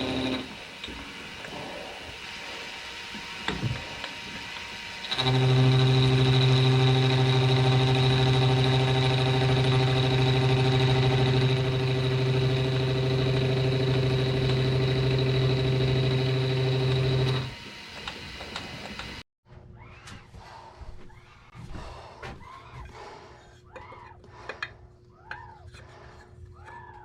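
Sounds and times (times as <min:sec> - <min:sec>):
milling machine motor running: 0:00.0 - 0:19.2.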